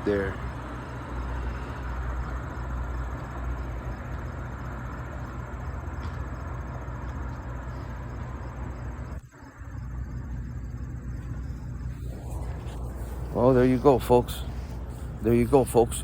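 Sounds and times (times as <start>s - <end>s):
insects trilling: 0.0s - 16.0s
low steady rumble: 0.0s - 16.0s.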